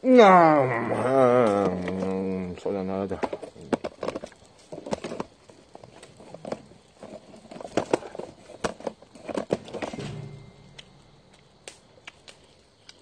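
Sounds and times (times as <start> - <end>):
sharp clicks and knocks: 6.3 - 13.0
dull thud: 9.8 - 11.6.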